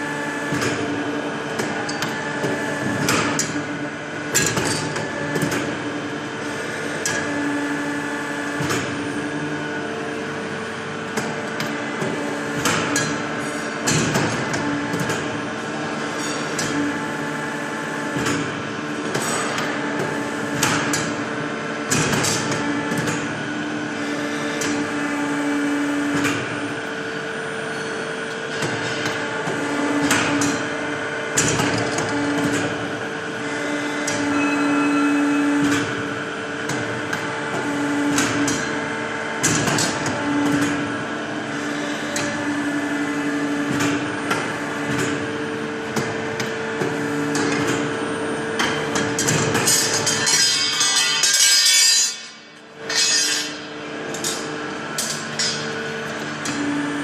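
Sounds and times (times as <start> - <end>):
machine clicks and knocks: 13.8 - 15.3, 31.3 - 32.7, 39.4 - 40.8, 48.6 - 50.5
machine motor hum: 53.6 - 57.0.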